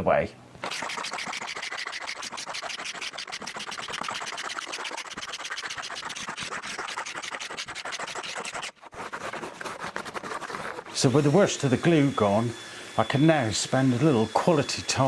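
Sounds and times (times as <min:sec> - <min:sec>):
scraping glue off wood: 0:00.6 - 0:11.0.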